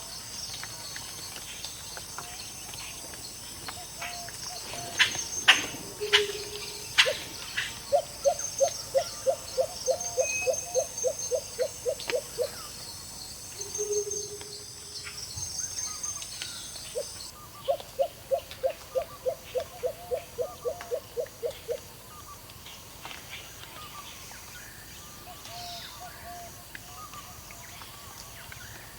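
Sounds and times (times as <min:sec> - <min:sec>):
insect chirping: 0:00.4 - 0:17.3
bird chirps: 0:03.7 - 0:20.8.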